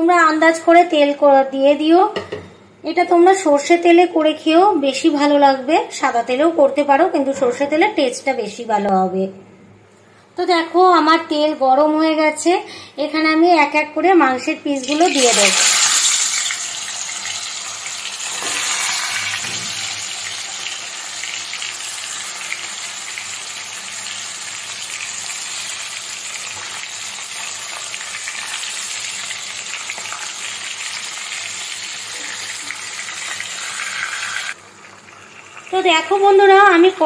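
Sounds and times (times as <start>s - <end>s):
chicken sizzling in oil: 14.8s - 36.9s.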